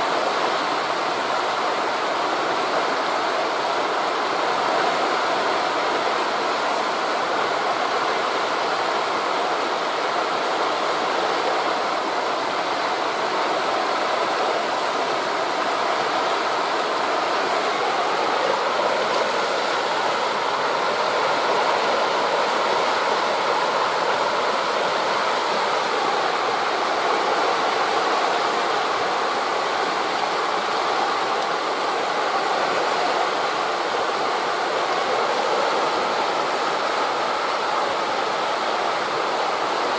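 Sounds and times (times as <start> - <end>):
sea waves on a beach: 0.0 - 39.9
wind through tree leaves: 0.0 - 39.9.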